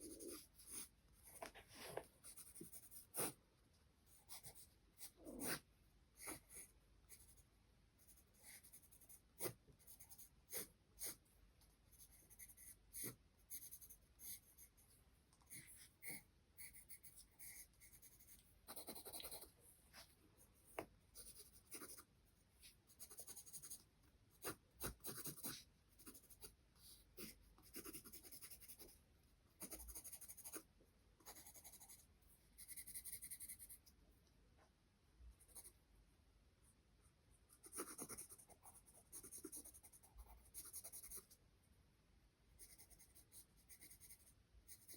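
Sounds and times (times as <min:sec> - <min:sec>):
charcoal scratching on paper: 0:00.0 - 0:03.4, 0:15.5 - 0:20.1, 0:20.8 - 0:23.8, 0:24.4 - 0:29.0, 0:29.6 - 0:33.9, 0:37.5 - 0:41.4, 0:42.6 - 0:44.9.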